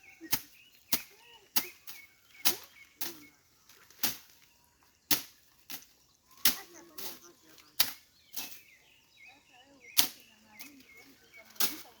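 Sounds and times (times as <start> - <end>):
blade slashing through vegetation: 0.2 - 3.2, 3.9 - 4.4, 5.1 - 8.8.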